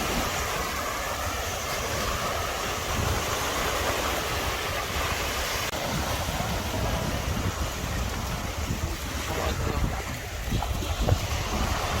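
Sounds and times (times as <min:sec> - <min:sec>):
sea surf: 0:00.0 - 0:12.0
wind buffeting microphone: 0:00.0 - 0:12.0.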